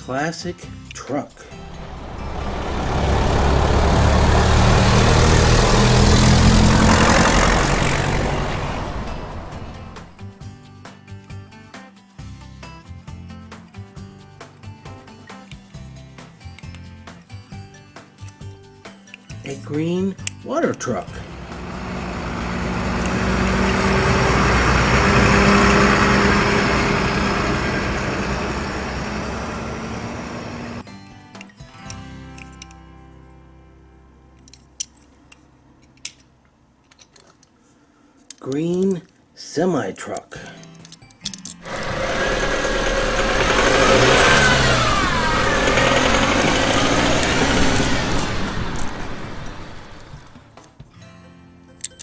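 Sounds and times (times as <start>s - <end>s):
truck engine driving past: 1.5s - 10.2s, 20.9s - 30.8s, 41.6s - 50.5s.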